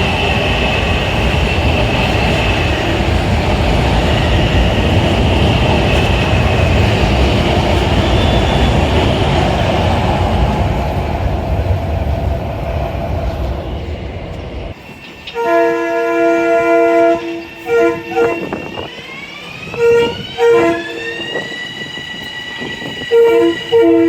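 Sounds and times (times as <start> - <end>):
loud rushing rumble: 0.0 - 14.8
train horn blasts: 15.3 - 18.8, 19.7 - 21.4, 23.1 - 24.0.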